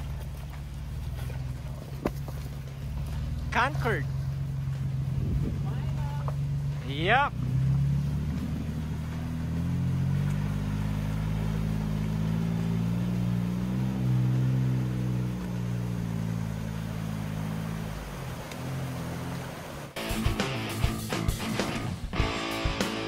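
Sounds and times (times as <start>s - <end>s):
car engine running at low speed: 0.0s - 23.0s
music: 20.0s - 23.0s.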